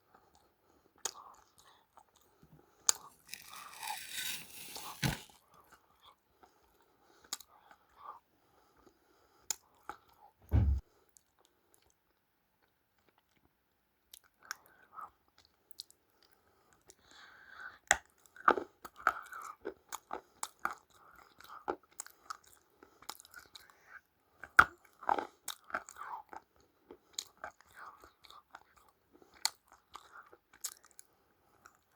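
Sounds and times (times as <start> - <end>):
low thump: 10.5 - 10.8
chewing crunchy food: 14.1 - 31.9.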